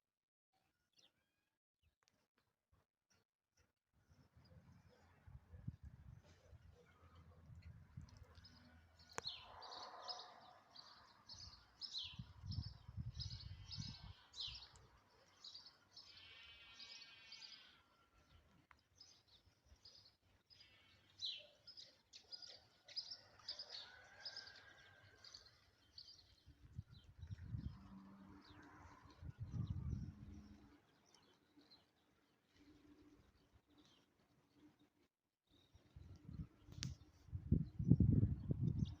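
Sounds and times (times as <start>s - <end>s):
birds chirping and trilling: 6.4s - 34.9s.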